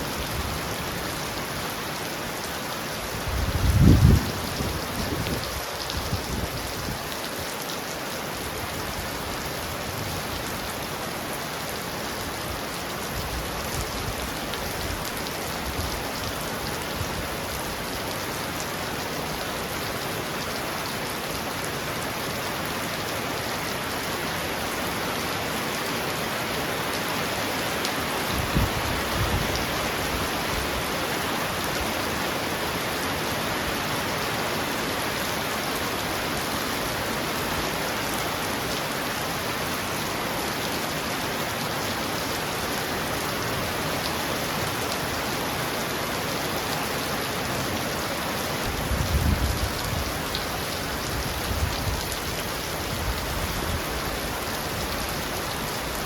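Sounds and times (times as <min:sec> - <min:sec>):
heavy rain pounding on a roof: 0:00.0 - 0:56.0.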